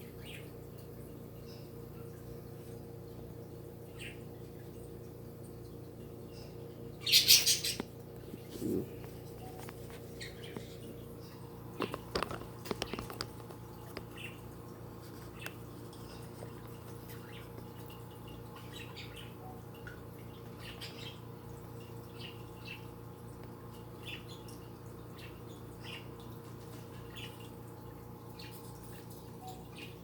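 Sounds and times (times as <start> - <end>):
steady low hum: 0.0 - 30.0
small animals chirping: 7.0 - 10.8.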